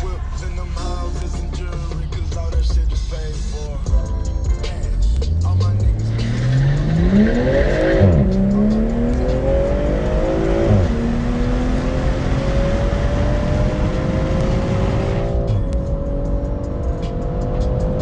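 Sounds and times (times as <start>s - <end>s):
sports car accelerating through gears: 5.2s - 18.0s.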